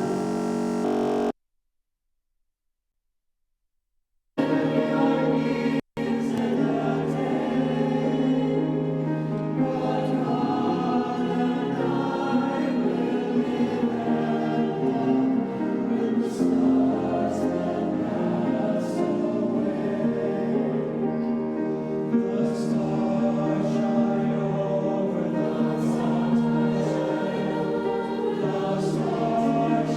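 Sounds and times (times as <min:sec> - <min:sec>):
choir singing in harmony: 0:04.4 - 0:29.9.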